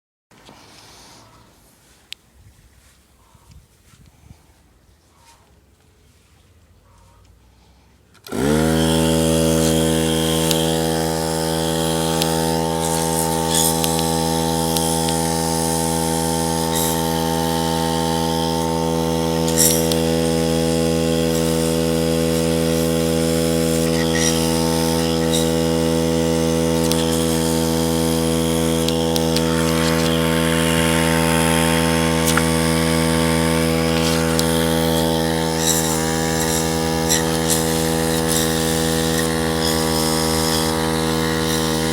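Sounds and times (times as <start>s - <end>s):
air compressor running: 8.2s - 41.9s
compressed air hissing: 8.4s - 41.9s.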